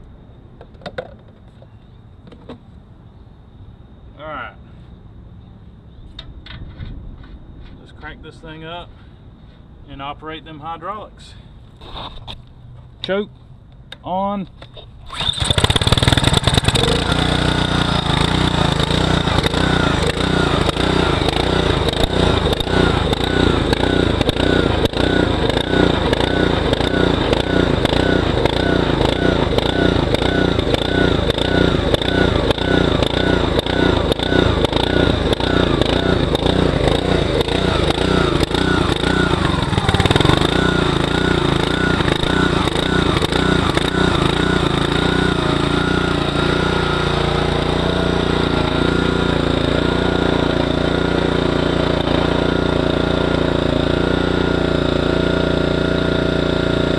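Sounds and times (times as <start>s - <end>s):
small engine running: 15.1s - 56.9s.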